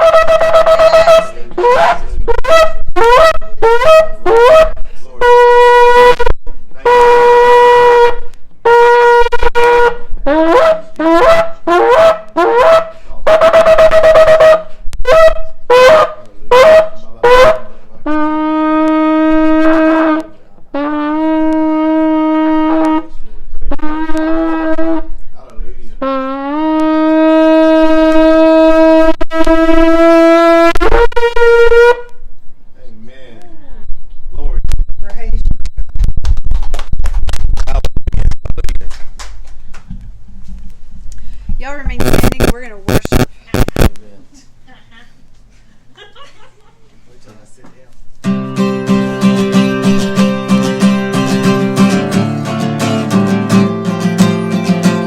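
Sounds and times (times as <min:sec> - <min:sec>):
shofar blasts: 0:00.0 - 0:25.2, 0:26.0 - 0:32.3, 0:48.3 - 0:55.0.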